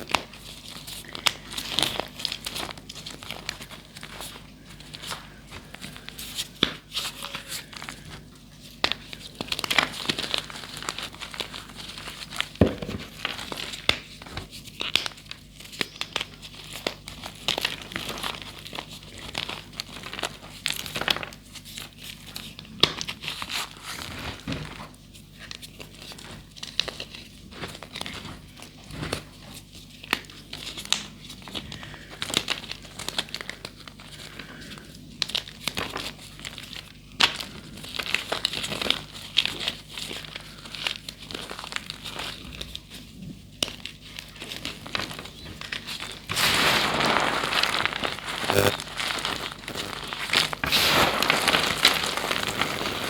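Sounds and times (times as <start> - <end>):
chalk being crushed by hand: 46.3 - 53.0.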